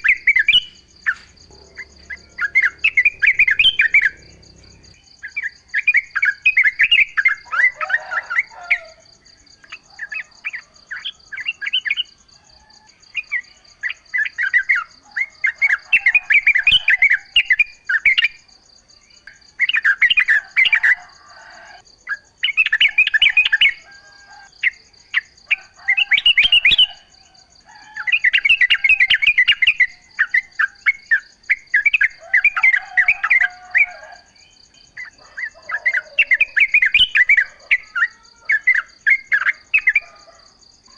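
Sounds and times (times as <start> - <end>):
bird chattering song: 0.0 - 7.4
insects trilling: 0.0 - 40.9.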